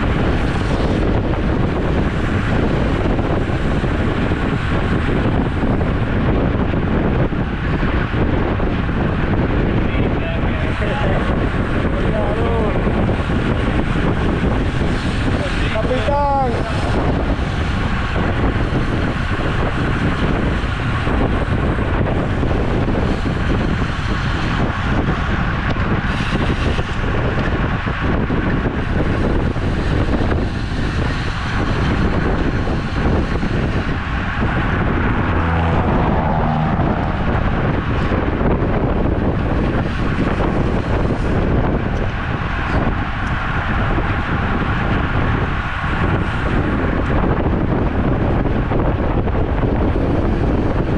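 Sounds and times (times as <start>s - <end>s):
road noise: 0.0s - 50.9s
wind buffeting microphone: 0.0s - 50.9s.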